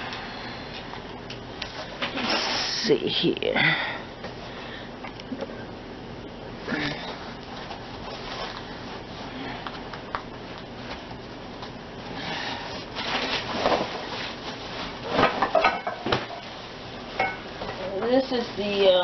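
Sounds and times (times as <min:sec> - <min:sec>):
rustling of packing: 0:07.0 - 0:15.6.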